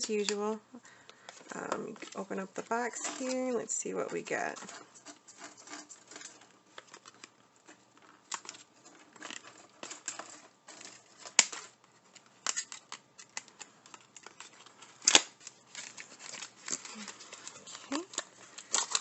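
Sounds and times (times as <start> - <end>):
cardboard tearing and rustling: 4.2 - 19.0.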